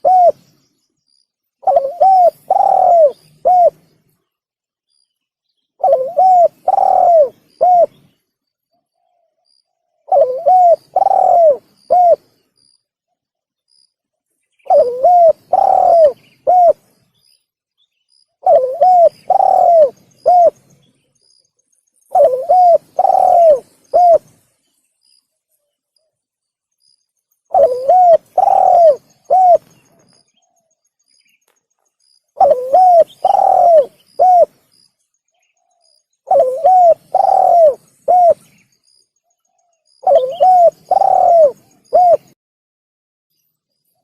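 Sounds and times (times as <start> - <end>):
dove cooing: 0.0 - 0.4, 1.6 - 3.8, 5.8 - 8.0, 10.0 - 12.3, 14.7 - 16.9, 18.4 - 20.6, 22.1 - 24.4, 27.5 - 30.6, 32.4 - 34.6, 35.6 - 38.5, 40.0 - 42.4.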